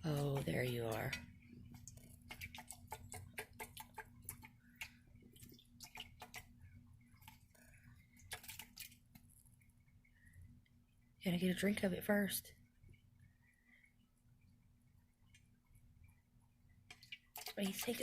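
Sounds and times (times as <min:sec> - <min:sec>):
bird beak pecking at water: 0:00.0 - 0:10.0, 0:16.8 - 0:18.0.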